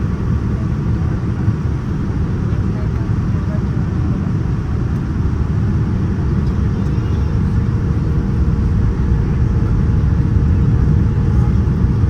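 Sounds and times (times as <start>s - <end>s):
jet engines and airflow in cabin: 0.0s - 12.0s.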